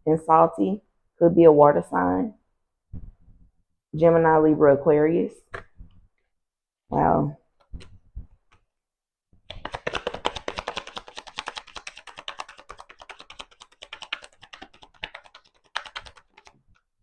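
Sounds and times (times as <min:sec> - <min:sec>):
cards being shuffled: 0:09.4 - 0:16.9.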